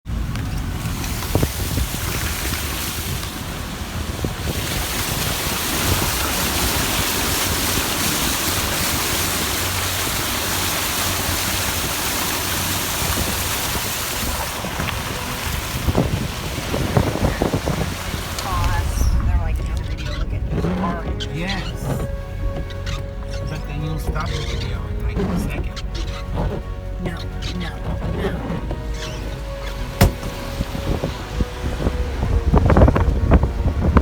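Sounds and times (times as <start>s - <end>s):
wind buffeting microphone: 0.1s - 23.2s, 29.8s - 34.0s
floodwater rushing: 0.1s - 34.0s
short knocks: 30.0s - 30.7s.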